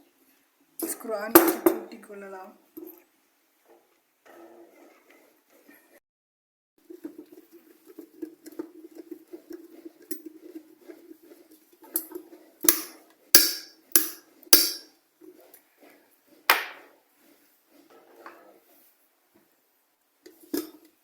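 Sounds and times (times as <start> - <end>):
sharp knocks: 12.7 - 14.8.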